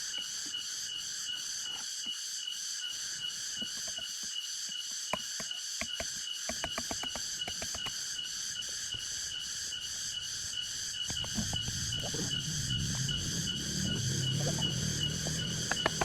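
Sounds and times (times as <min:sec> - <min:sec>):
insects chirring: 0:00.0 - 0:16.0
low rumbling noise: 0:09.7 - 0:16.0.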